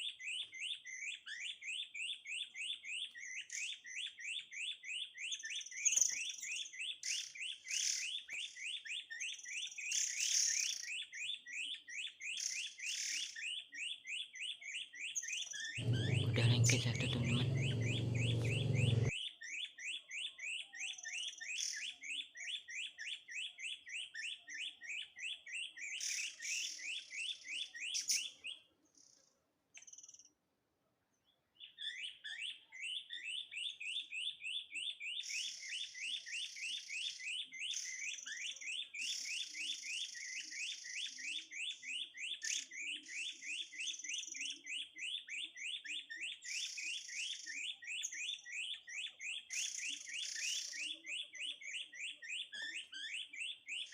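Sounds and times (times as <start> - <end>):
recorded bird chirp: 12.0 - 19.1, 31.1 - 53.9.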